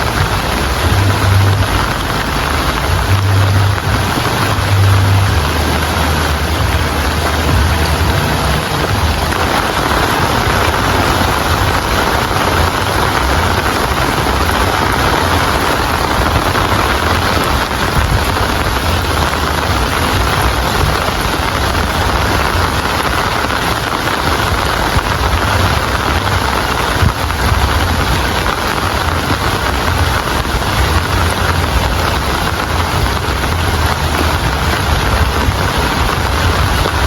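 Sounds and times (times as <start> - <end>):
heavy rain falling: 0.0 - 37.0
low rumble: 0.0 - 37.0.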